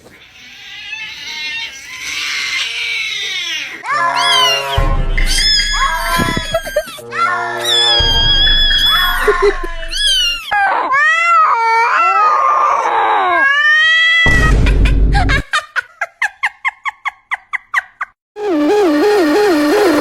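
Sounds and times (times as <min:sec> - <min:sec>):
cat crying and wailing: 0:00.0 - 0:14.6
fast clipped cries: 0:03.8 - 0:10.6.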